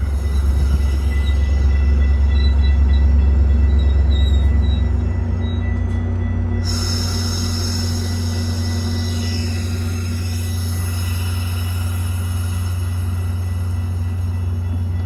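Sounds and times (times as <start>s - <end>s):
train rumbling past: 0.0s - 15.0s
wheel squeal: 3.7s - 5.7s
train hiss: 6.6s - 15.0s.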